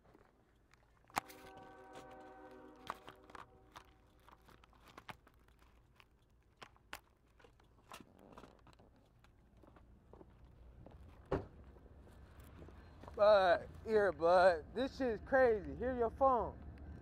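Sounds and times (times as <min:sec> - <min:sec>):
faint clicks and crunches: 0:00.0 - 0:14.2
held horn tone: 0:01.2 - 0:03.8.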